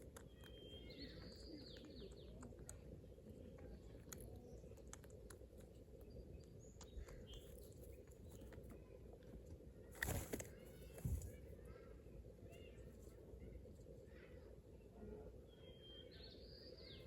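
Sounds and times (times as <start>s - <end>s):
faint bird chirps: 0.0s - 5.1s, 9.8s - 17.0s
faint clicks: 0.0s - 11.4s.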